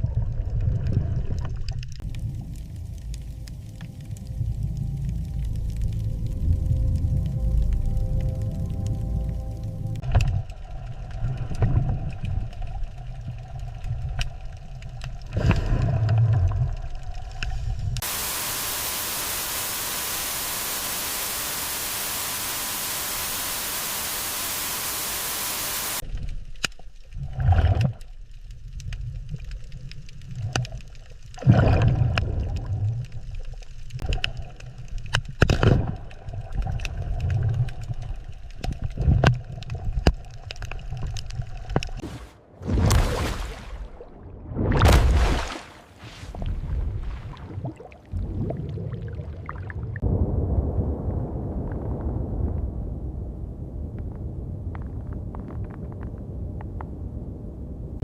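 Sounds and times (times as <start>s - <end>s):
static-like hiss: 18.0s - 26.0s
underwater rumbling surges: 42.0s - 53.8s.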